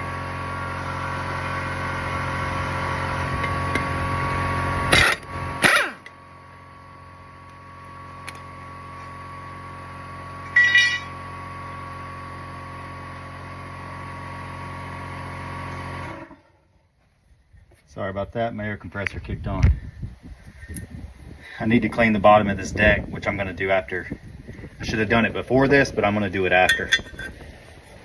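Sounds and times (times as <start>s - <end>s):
air compressor motor hum: 0.0s - 16.6s, 19.4s - 28.0s
short loud bursts: 4.9s - 6.0s.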